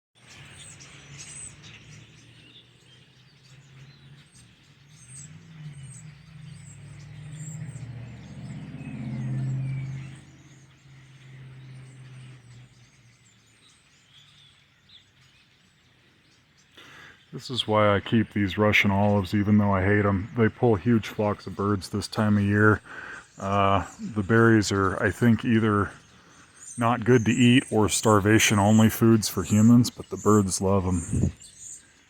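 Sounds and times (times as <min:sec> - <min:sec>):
flock of birds chirping: 0:00.2 - 0:32.0
vehicle engine passing by: 0:03.5 - 0:13.4.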